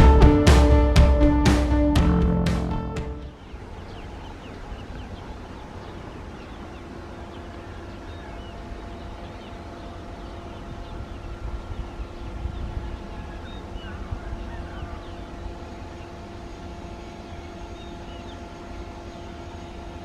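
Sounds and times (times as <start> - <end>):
low rumble: 0.0 - 3.3
faint hum: 0.0 - 20.0.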